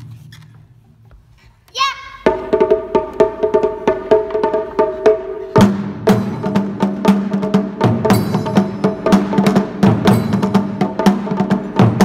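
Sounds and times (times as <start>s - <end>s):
drums beating: 0.9s - 12.0s.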